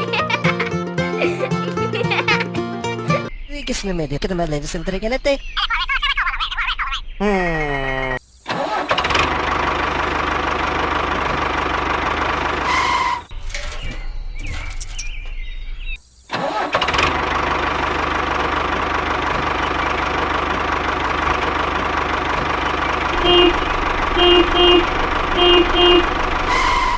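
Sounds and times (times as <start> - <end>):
small tractor engine running: 9.0 - 13.2, 16.8 - 26.9.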